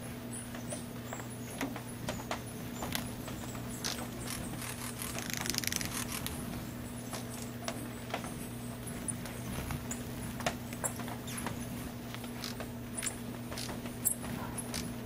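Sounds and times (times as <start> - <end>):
hummingbird buzzy trill: 2.9 - 7.5, 12.2 - 15.0.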